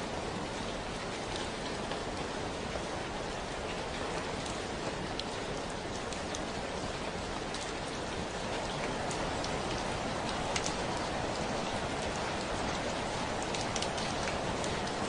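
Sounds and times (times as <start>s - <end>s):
steady rain hiss: 0.0s - 15.0s
raindrops ticking: 4.4s - 15.0s.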